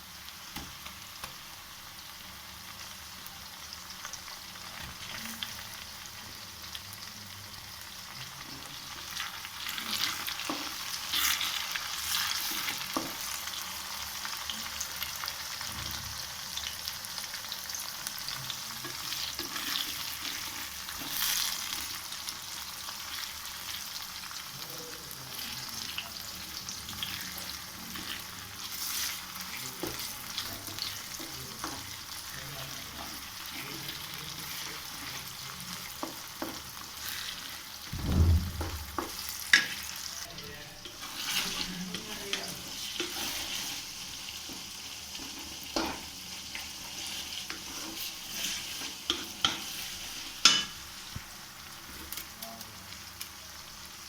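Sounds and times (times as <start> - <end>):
curry sizzling in a pan: 0.0 - 38.0, 38.8 - 54.0
heavy thump: 37.9 - 39.2
spoon scraping a pan: 40.9 - 43.9, 47.0 - 50.8.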